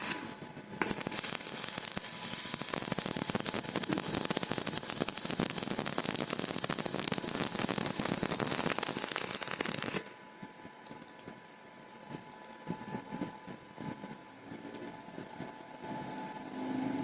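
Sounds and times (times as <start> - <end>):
welding arc crackling: 0.0 - 10.1.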